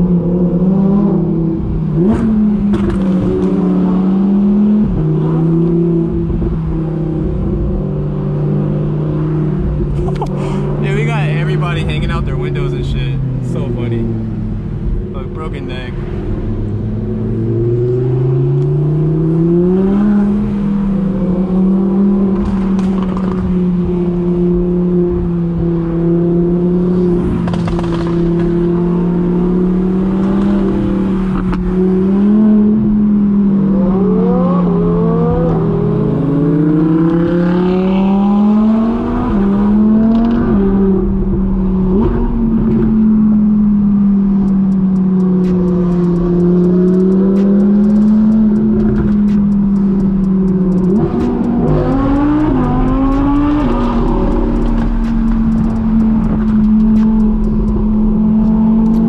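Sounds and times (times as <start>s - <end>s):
car engine running under load: 1.1s - 7.8s, 39.3s - 59.0s.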